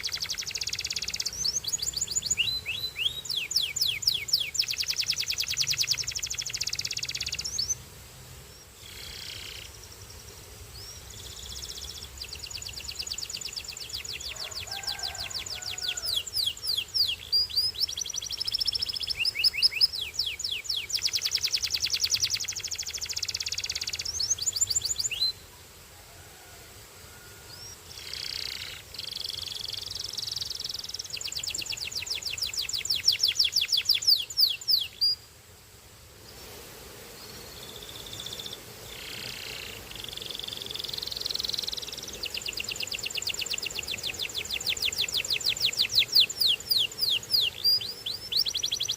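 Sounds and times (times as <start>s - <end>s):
canary singing in fast trills: 0.0s - 7.8s, 10.8s - 25.4s, 27.6s - 35.2s, 37.8s - 48.9s.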